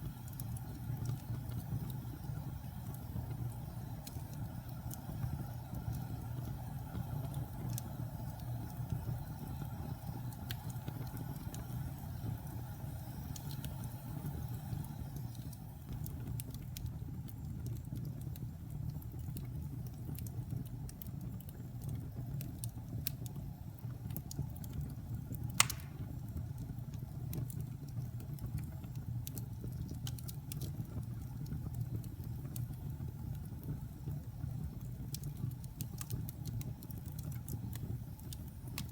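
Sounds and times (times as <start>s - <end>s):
fire crackles and pop: 0.0s - 38.9s
wood fire rumbling: 0.0s - 38.9s.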